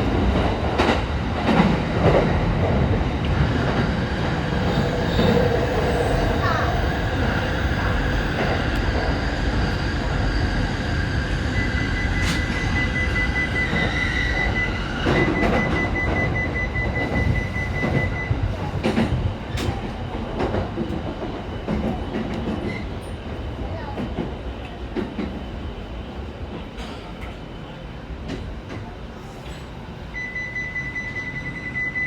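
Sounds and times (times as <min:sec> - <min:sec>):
train rumble and wheel clatter: 0:00.0 - 0:32.0
steady high squeal: 0:09.1 - 0:16.5.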